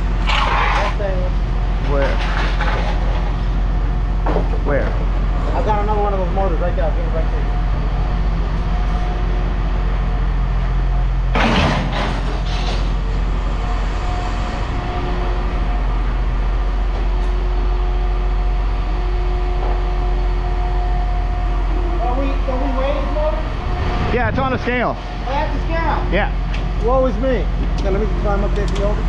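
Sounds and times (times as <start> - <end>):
engine drone: 0.0 - 29.0
scrap metal clatter: 0.2 - 1.0, 1.9 - 3.4
faint whining tones: 5.1 - 11.3, 12.6 - 27.1.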